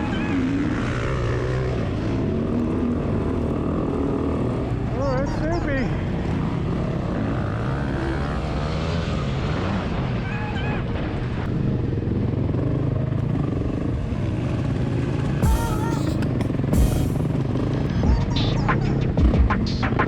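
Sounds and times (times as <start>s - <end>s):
motorcycle engine running: 11.5s - 18.2s
brief wavering pitched sounds: 15.4s - 17.4s.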